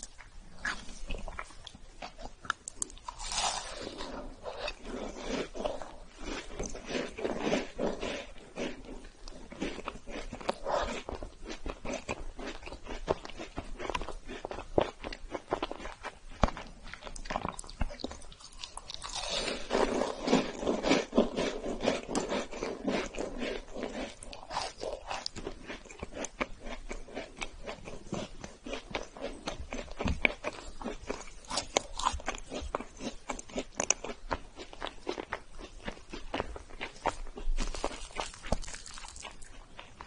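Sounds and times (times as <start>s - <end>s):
cookie crunching: 0.0s - 40.0s.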